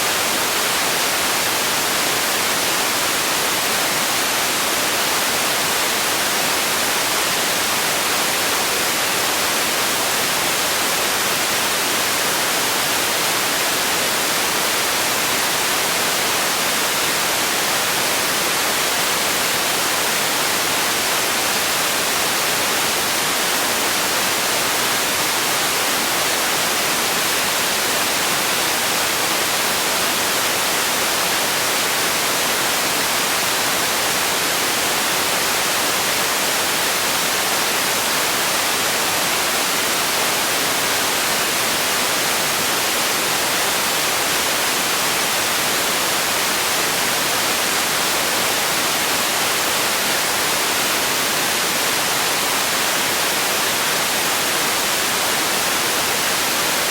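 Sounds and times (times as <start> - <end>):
steady white noise hiss: 0.0 - 56.9.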